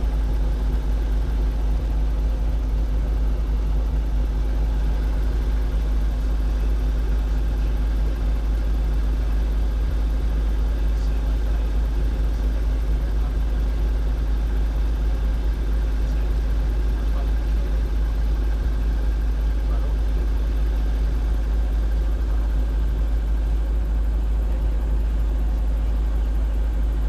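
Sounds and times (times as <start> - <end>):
helicopter engine and rotor drone: 0.0 - 27.0.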